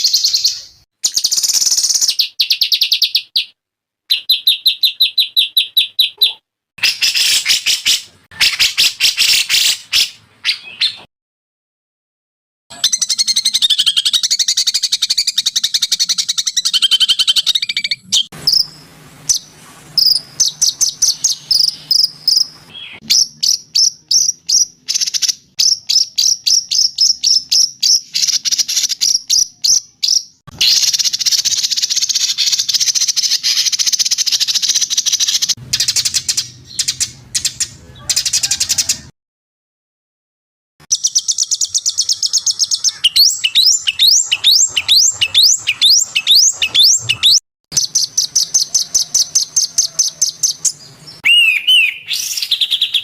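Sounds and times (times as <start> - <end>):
high warbling birdsong: 0.0 - 11.1, 12.7 - 38.5, 40.9 - 53.0
rapid high bird chirps: 0.0 - 11.1, 12.7 - 39.1, 40.8 - 53.0
buzzy trilling birdsong: 12.7 - 39.1, 40.9 - 53.0.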